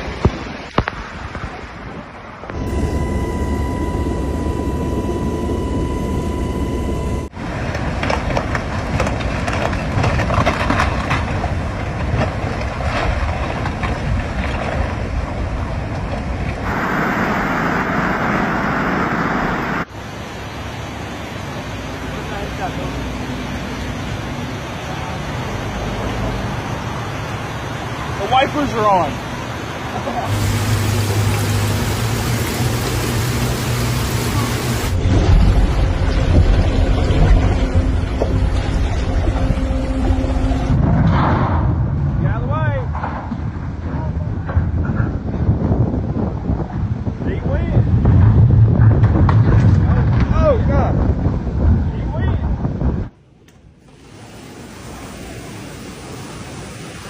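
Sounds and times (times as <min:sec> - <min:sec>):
storm wind and water rushing: 0:00.0 - 0:57.0
low hum: 0:02.5 - 0:08.4, 0:16.0 - 0:19.9, 0:30.3 - 0:42.2
heavy rain hissing: 0:16.6 - 0:36.9, 0:53.8 - 0:57.0.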